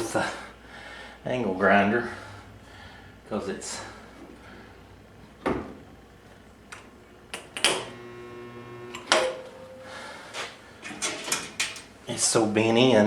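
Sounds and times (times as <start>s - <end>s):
electrical hum: 0.0s - 13.0s
metallic clicks and knocks: 10.9s - 11.9s.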